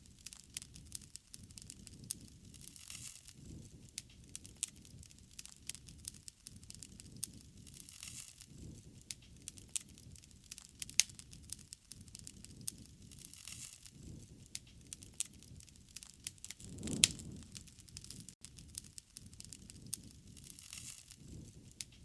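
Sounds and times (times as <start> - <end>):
campfire crackling and popping: 0.0 - 22.0
rush of flames: 12.2 - 21.8.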